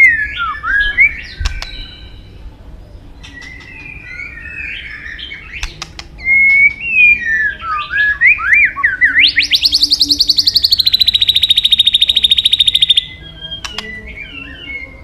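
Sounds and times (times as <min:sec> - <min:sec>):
bird singing whistled phrases: 0:00.0 - 0:02.3, 0:03.2 - 0:15.0
sharp clicks: 0:05.6 - 0:06.2.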